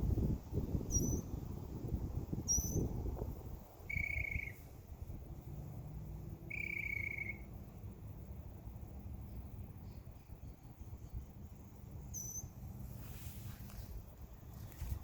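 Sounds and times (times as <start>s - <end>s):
bird chirp: 0.9s - 1.3s, 2.5s - 2.9s, 3.9s - 4.6s, 6.5s - 7.5s, 12.0s - 12.6s
buzzy bird trills: 0.9s - 1.3s, 2.5s - 2.9s, 3.9s - 4.6s, 6.5s - 7.5s, 12.1s - 12.6s.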